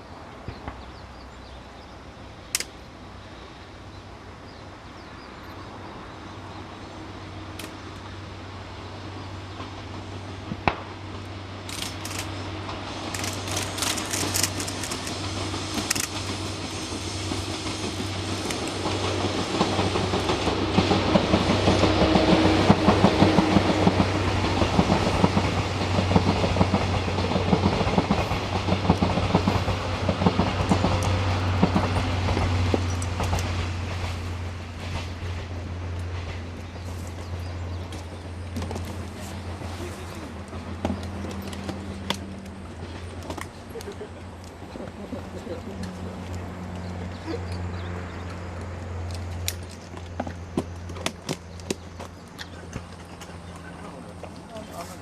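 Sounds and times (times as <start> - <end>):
sharp clicks: 2.5 - 2.8, 11.7 - 12.3, 13.1 - 15.2
train wheel clatter: 9.0 - 55.0
electric train running: 11.3 - 49.8.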